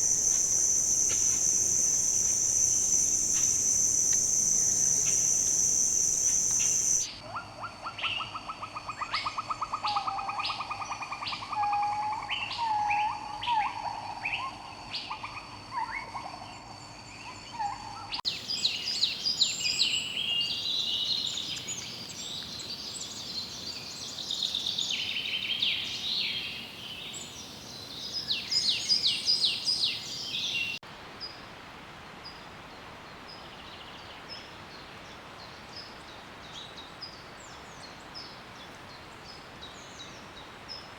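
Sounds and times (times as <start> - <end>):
birds singing and calling: 0.0 - 7.1
high chattering bird calls: 0.0 - 7.1
trilled bird songs and whistles: 0.0 - 7.2, 17.1 - 30.8
faint hiss: 0.0 - 7.3, 18.3 - 40.9.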